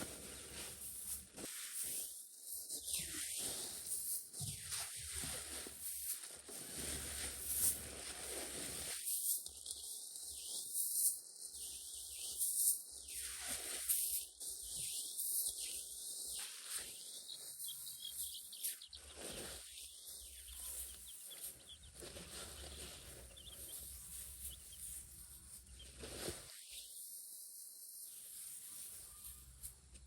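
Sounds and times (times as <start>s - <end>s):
high bird chirps: 15.8s - 26.0s.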